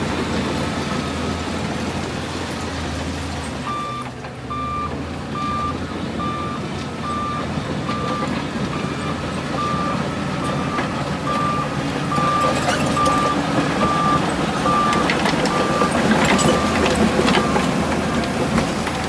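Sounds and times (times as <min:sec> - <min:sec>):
diesel engine running: 0:00.0 - 0:19.0
reversing alarm beeping: 0:03.6 - 0:17.9.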